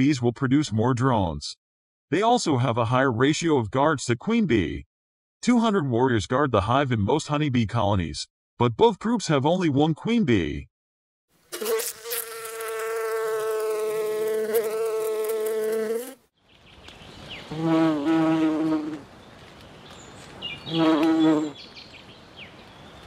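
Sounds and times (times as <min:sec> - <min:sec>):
bees buzzing: 0:11.5 - 0:16.2, 0:17.4 - 0:19.1, 0:20.6 - 0:21.6.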